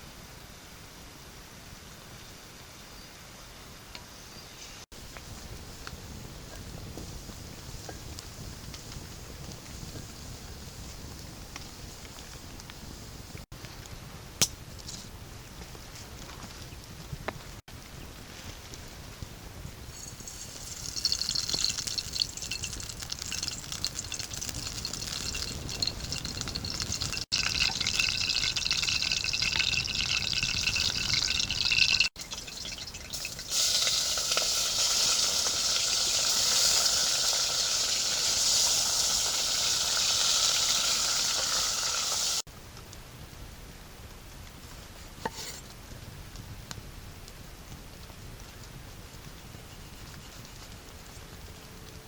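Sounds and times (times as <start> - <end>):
water pouring into container: 20.0 - 37.0.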